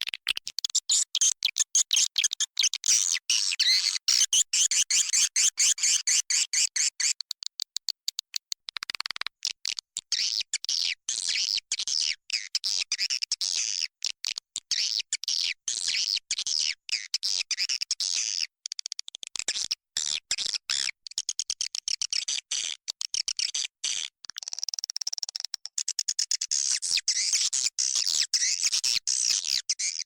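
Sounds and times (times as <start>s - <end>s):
swiftlets twittering and chirping: 0.7s - 7.2s.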